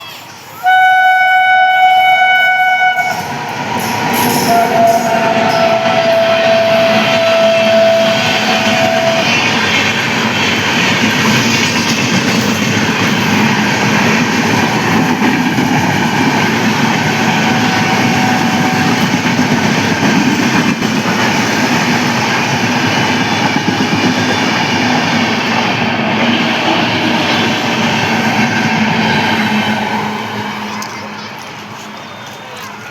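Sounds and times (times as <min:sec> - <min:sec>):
train running past: 0:00.0 - 0:32.9
shrill train horn: 0:00.6 - 0:03.3, 0:04.2 - 0:09.6, 0:17.3 - 0:19.2.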